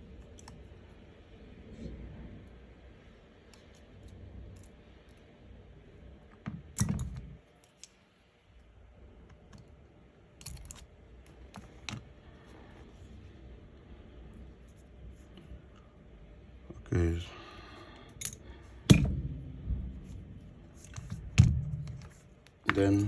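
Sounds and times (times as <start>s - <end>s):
small repair tools clicking: 10.4s - 10.9s, 18.0s - 19.1s.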